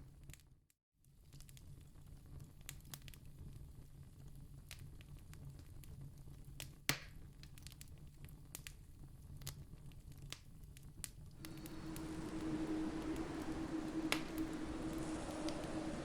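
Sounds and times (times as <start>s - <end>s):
steady rushing noise: 11.4s - 16.0s.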